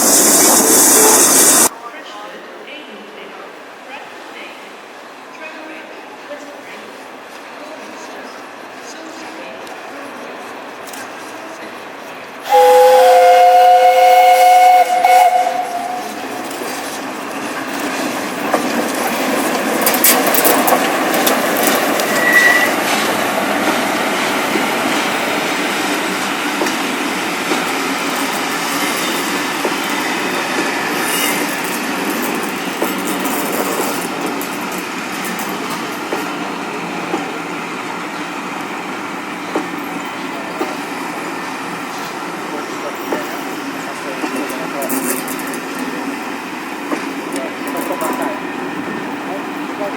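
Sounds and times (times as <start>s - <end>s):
train wheels rushing on rails: 0.0s - 1.7s, 6.8s - 49.9s
steam locomotive chime whistle: 12.5s - 16.2s, 22.1s - 22.8s.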